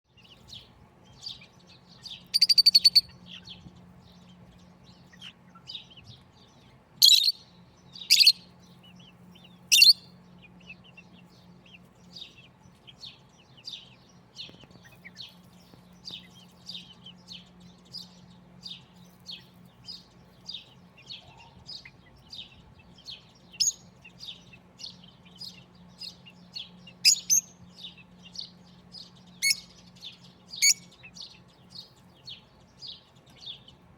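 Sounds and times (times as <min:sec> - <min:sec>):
faint low hum: 0:00.1 - 0:33.9
parrots chirping and whistling: 0:02.3 - 0:03.1, 0:07.0 - 0:07.4, 0:09.7 - 0:10.0, 0:27.0 - 0:27.5, 0:29.4 - 0:29.7, 0:30.6 - 0:30.9.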